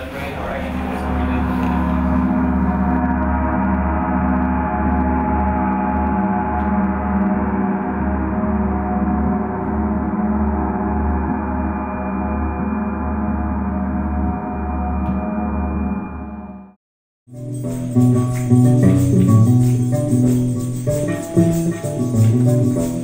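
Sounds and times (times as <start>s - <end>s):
gong ringing tone: 0.0s - 16.7s.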